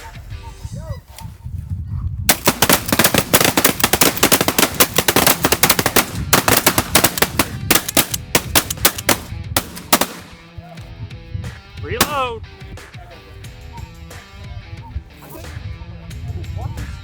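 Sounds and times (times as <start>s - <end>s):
wind rumbling on microphone: 0.0s - 9.6s
shotguns firing: 2.3s - 10.6s, 12.0s - 12.3s.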